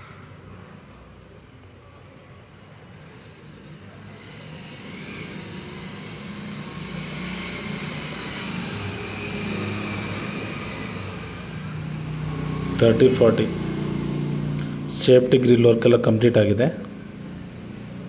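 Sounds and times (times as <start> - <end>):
passing vehicle engine and road noise: 0.0 - 18.0.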